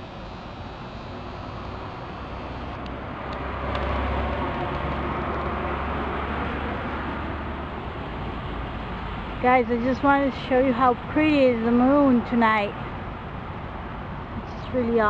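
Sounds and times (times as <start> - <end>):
vehicle passing with low rumble: 0.0 - 12.1.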